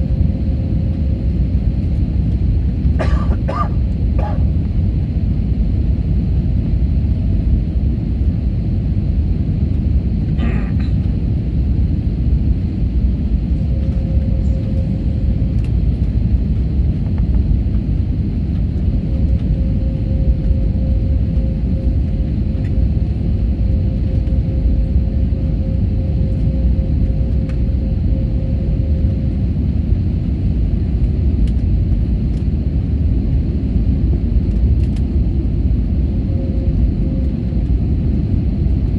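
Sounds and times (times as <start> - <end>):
airliner rumbling: 0.0 - 38.9
faint steady hum: 0.0 - 38.9.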